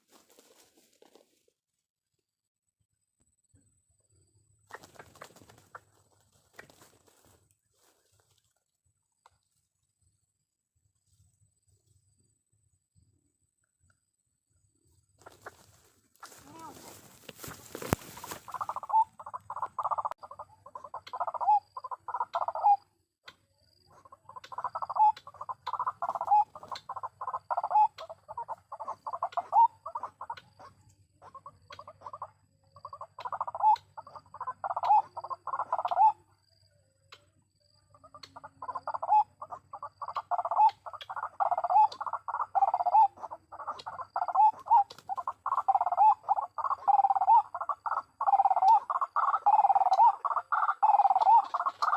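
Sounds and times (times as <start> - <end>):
waterhen croaking calls: 16.2 - 22.9, 23.9 - 36.3, 38.0 - 51.9.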